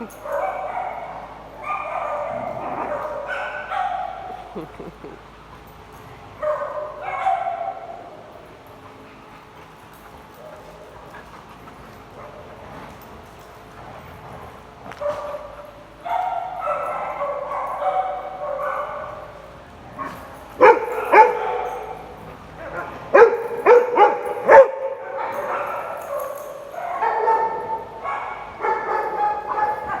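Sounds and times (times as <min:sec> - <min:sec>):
dog whining: 0:02.0 - 0:03.3.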